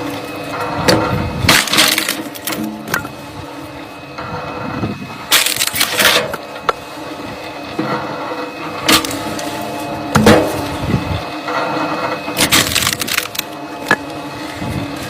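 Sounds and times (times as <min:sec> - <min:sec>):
steady engine hum: 0:00.0 - 0:15.0
wood cracking and splintering: 0:00.9 - 0:03.1, 0:05.3 - 0:06.4, 0:08.8 - 0:09.6, 0:12.4 - 0:14.2.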